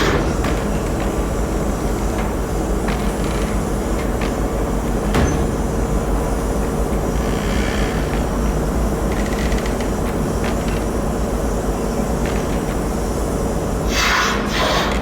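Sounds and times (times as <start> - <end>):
ship engines rumbling: 0.0 - 15.0.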